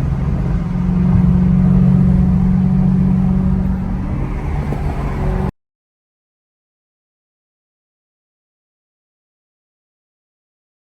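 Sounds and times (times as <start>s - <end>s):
car engine running: 0.0s - 5.5s.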